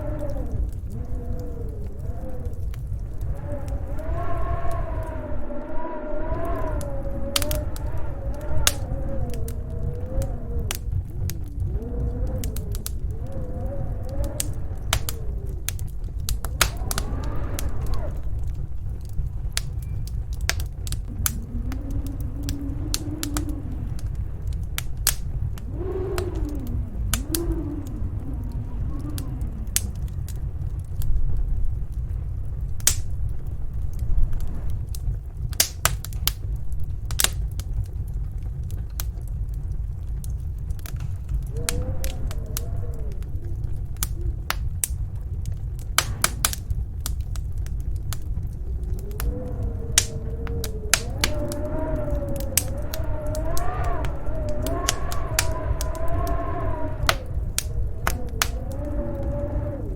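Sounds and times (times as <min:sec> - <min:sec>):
howling storm wind: 0:00.0 - 0:59.9
wood fire crackling and popping: 0:00.0 - 0:59.9.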